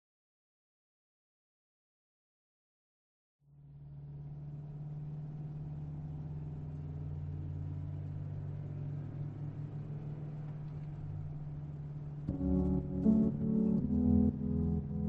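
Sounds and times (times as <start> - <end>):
car engine and road drone: 3.4 - 15.0.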